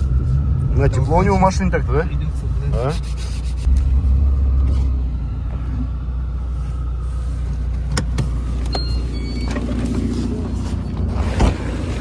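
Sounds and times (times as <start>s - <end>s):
car interior rumble: 0.0s - 12.0s
high beeps: 8.7s - 9.6s.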